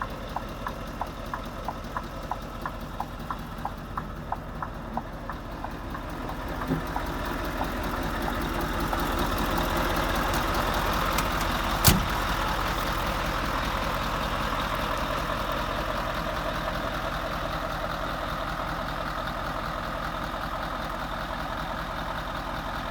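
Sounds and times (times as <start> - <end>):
diesel engine idling: 0.0 - 22.9
sharp click: 11.1 - 12.3.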